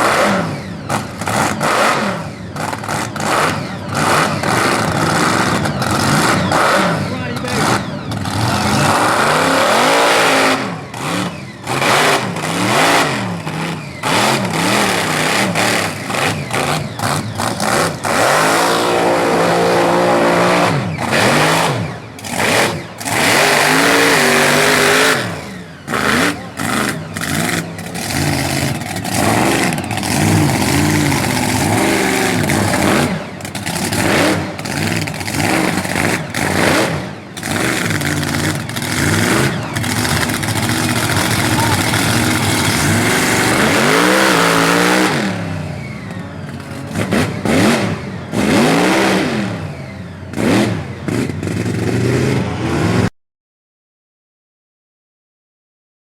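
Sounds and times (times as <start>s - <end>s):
truck engine revving: 0.0s - 53.1s.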